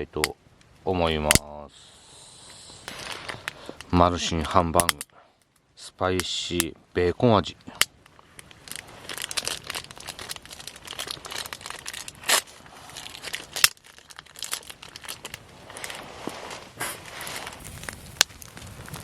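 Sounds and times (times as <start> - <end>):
plastic packaging crinkling: 2.9 - 3.7, 8.2 - 19.0
plastic packaging tearing: 8.4 - 19.0.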